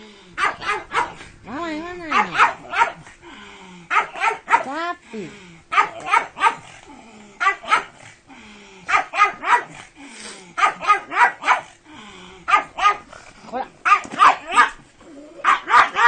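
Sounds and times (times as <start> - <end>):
dog barking: 0.4 - 1.2, 2.1 - 3.1, 3.9 - 4.8, 5.7 - 6.7, 7.4 - 8.0, 8.9 - 9.8, 10.6 - 11.8, 12.5 - 13.1, 13.8 - 14.8, 15.4 - 16.0.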